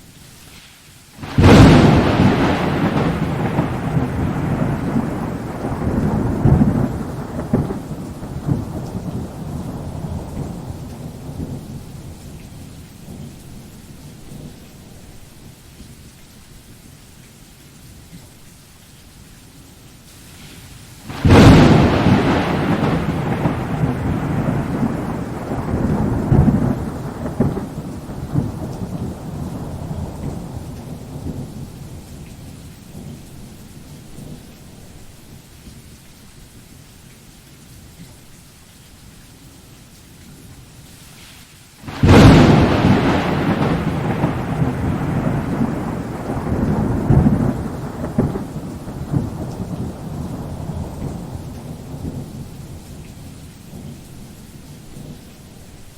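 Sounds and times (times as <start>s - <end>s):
steady falling rain: 0.0s - 55.9s
thunder cracking and rumbling: 1.2s - 13.3s, 21.1s - 35.0s, 41.8s - 55.4s.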